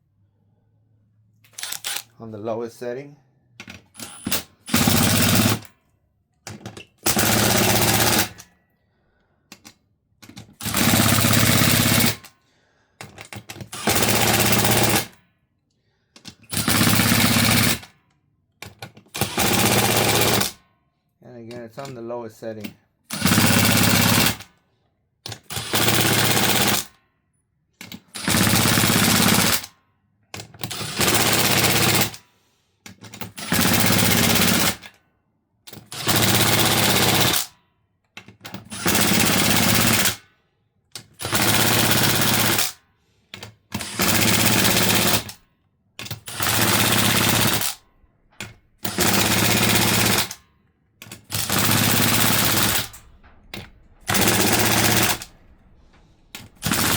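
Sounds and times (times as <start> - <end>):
impact wrench hammering: 46.0 - 50.4, 51.0 - 56.9.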